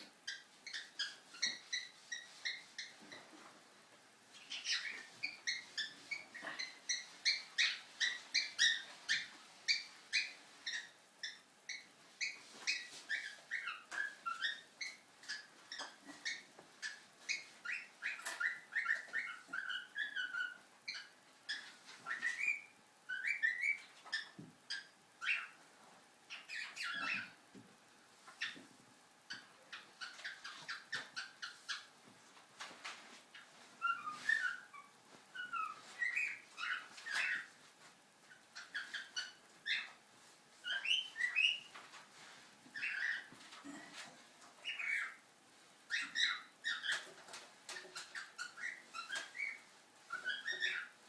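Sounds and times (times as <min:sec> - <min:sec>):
bird chirps: 0:04.3 - 0:25.6, 0:26.3 - 0:27.4, 0:33.4 - 0:37.5, 0:38.6 - 0:40.0, 0:40.6 - 0:41.8, 0:42.8 - 0:43.8, 0:44.6 - 0:45.2, 0:45.9 - 0:47.1, 0:47.7 - 0:51.0.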